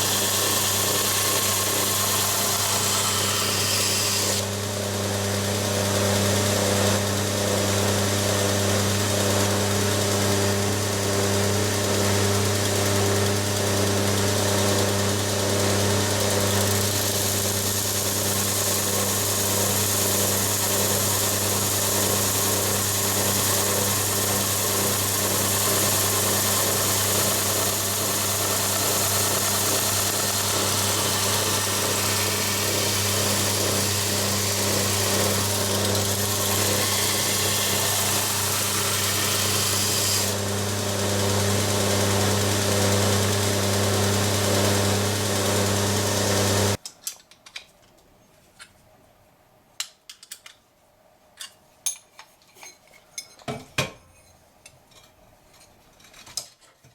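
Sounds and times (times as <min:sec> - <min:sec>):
belt grinder grinding steel: 0:00.0 - 0:04.7, 0:13.8 - 0:46.8.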